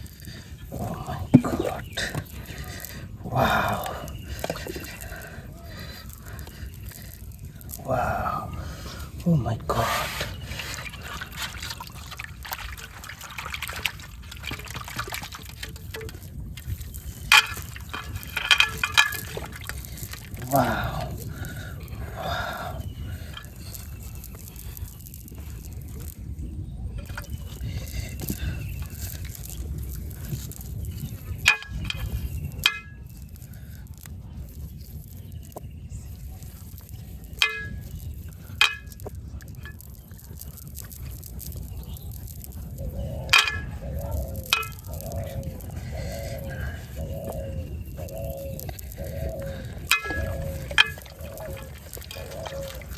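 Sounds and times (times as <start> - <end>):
water trickling and splashing: 0.0 - 52.9
sharp metallic clangs: 37.4 - 38.0, 43.3 - 43.8.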